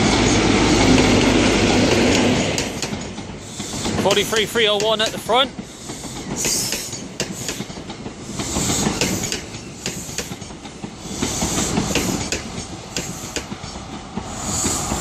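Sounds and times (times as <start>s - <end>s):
train rolling past: 0.0s - 15.0s
wheels clattering over rail joints: 1.9s - 5.6s.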